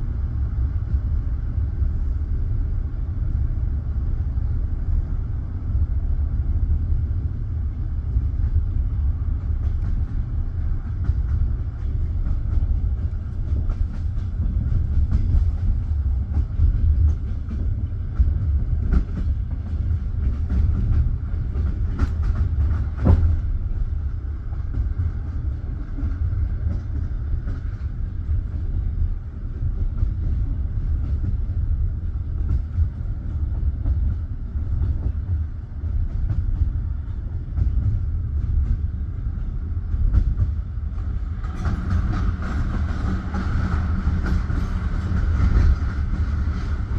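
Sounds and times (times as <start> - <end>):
train wheels rumbling on rails: 0.0 - 46.9
train wheels clicking: 8.1 - 46.9.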